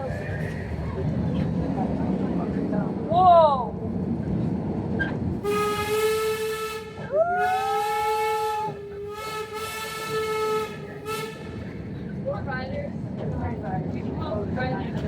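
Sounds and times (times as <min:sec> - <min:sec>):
steam locomotive whistle: 0:05.4 - 0:11.6.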